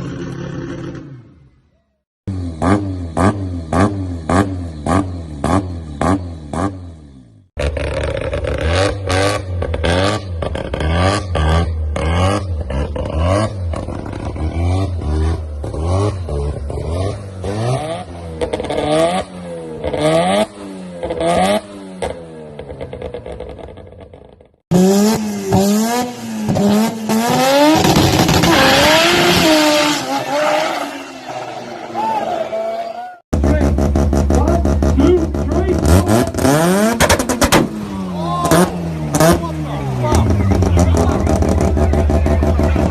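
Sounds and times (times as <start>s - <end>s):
rotary car engine revving: 2.3s - 32.0s, 33.3s - 42.9s
louder rotary engine accelerating: 38.2s - 42.9s.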